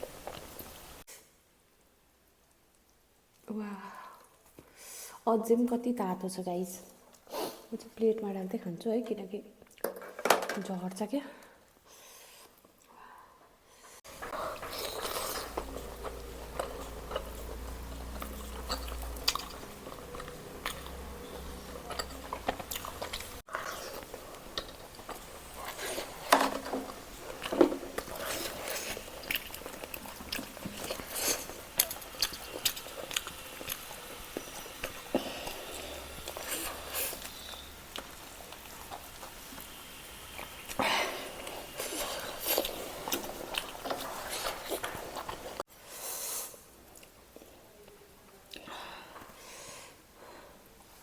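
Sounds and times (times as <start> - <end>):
person chewing and biting food: 14.1 - 26.3, 26.9 - 45.6.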